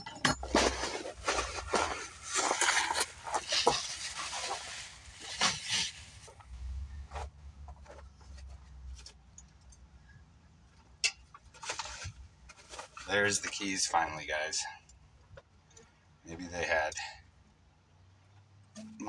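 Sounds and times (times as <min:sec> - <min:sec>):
packaging rustling: 0:00.4 - 0:08.1.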